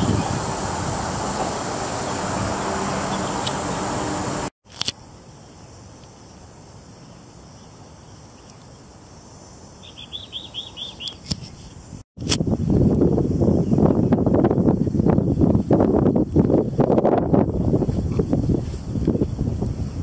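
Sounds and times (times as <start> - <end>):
small bird chirping: 9.8 - 11.8.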